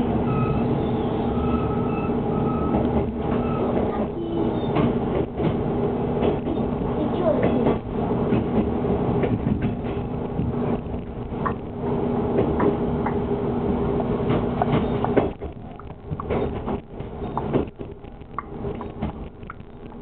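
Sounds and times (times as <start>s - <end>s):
railcar engine hum: 0.0s - 20.0s
wheels clicking over rail joints: 2.7s - 11.8s, 14.2s - 20.0s.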